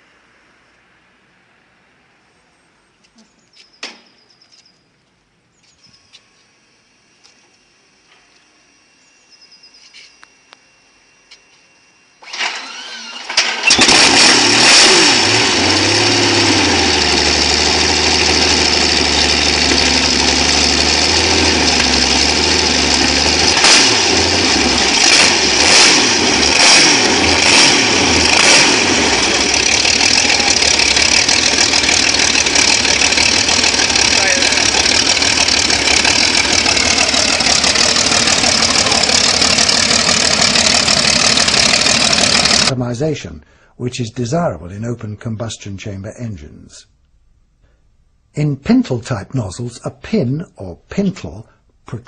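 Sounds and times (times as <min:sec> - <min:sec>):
engine running loudly: 0:12.3 - 0:42.8.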